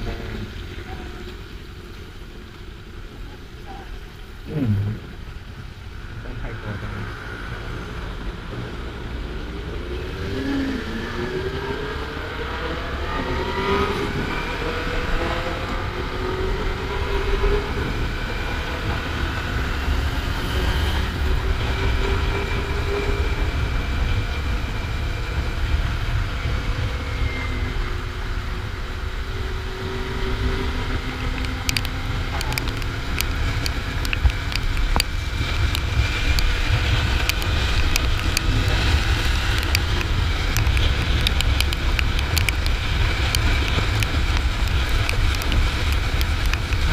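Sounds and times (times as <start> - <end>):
wind rush on microphone: 0.0 - 46.9
sharp ticks: 31.2 - 38.6, 39.5 - 46.9.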